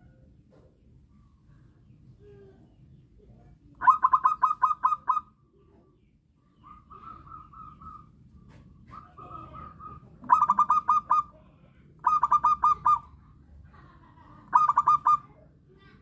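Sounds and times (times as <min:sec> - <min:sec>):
dove cooing: 0:03.8 - 0:05.4, 0:06.6 - 0:11.4, 0:12.0 - 0:13.2, 0:14.5 - 0:15.3.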